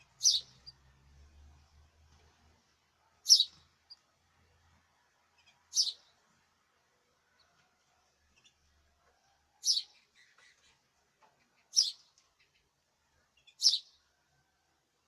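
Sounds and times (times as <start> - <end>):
soft bird chirps: 0.0 - 0.8, 3.2 - 4.0, 5.3 - 6.2, 9.6 - 10.8, 11.4 - 12.7, 13.4 - 14.0
songbird high calls: 0.2 - 0.7, 3.3 - 3.6, 11.7 - 12.0, 13.6 - 13.9.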